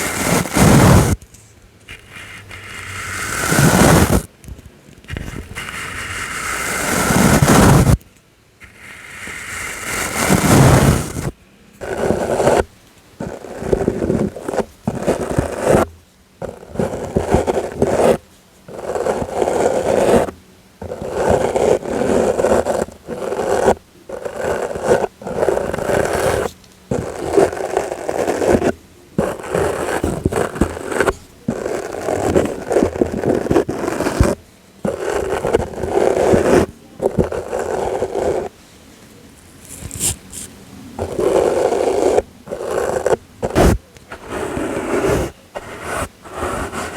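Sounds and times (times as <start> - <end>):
brush strokes on microphone: 0.0 - 1.2, 1.9 - 4.3, 5.1 - 8.0, 8.6 - 12.6, 39.6 - 46.9.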